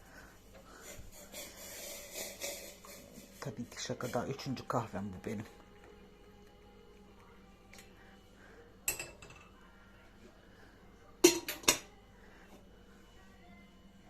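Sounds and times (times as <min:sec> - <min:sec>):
dishes and cutlery clinking: 0:08.8 - 0:09.5, 0:11.2 - 0:11.9.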